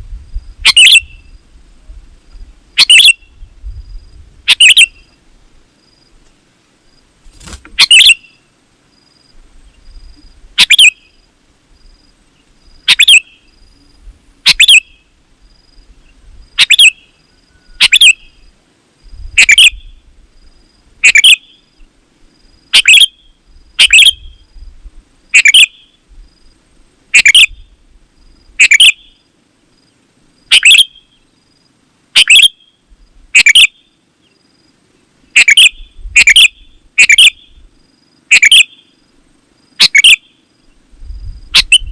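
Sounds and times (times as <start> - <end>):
bird warbling song: 0.6 - 1.4, 2.8 - 3.6, 4.5 - 5.2, 7.7 - 8.5, 9.6 - 11.3, 12.3 - 15.2, 16.0 - 18.5, 19.3 - 20.0, 21.0 - 21.9, 25.3 - 26.0, 27.1 - 27.8, 30.5 - 31.4, 33.4 - 34.4, 35.2 - 37.7.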